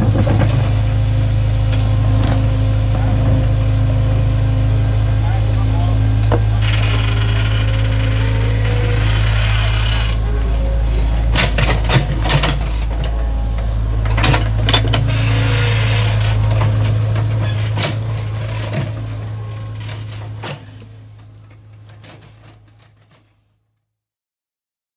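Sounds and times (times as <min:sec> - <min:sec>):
earthmoving machinery engine drone: 0:00.0 - 0:22.8
clanks and knocks: 0:11.3 - 0:13.2.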